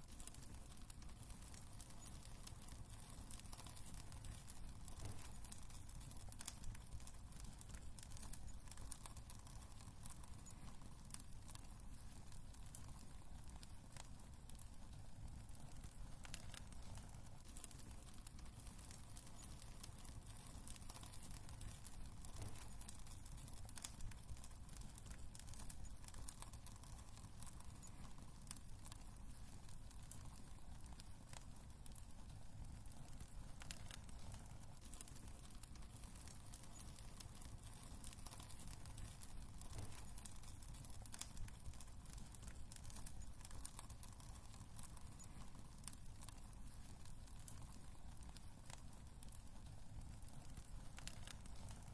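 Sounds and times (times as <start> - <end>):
wood fire crackling: 0.0 - 51.9.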